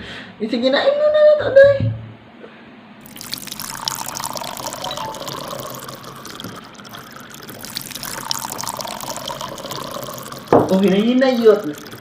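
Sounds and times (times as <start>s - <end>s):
small clicks and splashes: 3.0s - 12.0s
water running: 3.0s - 12.0s.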